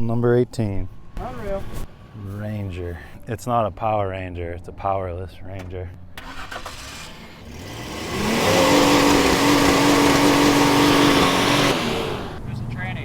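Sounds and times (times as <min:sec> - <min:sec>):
pickup engine revving: 0:06.2 - 0:12.5.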